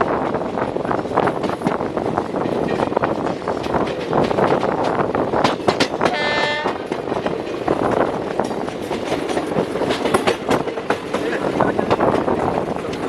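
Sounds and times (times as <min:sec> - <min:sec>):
train rattling and clattering: 0:00.0 - 0:13.0
train horn toot: 0:06.1 - 0:06.8.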